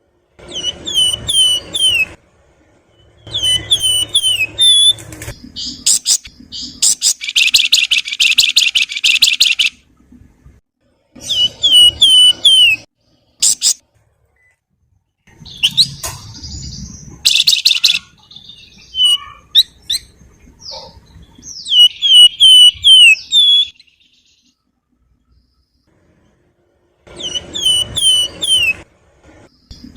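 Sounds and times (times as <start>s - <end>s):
bird singing trills and whistles: 0.5s - 2.2s, 3.1s - 9.8s, 11.2s - 13.8s, 15.4s - 24.5s, 27.2s - 28.8s
bird chattering: 5.5s - 9.8s, 13.4s - 13.8s, 17.1s - 23.8s.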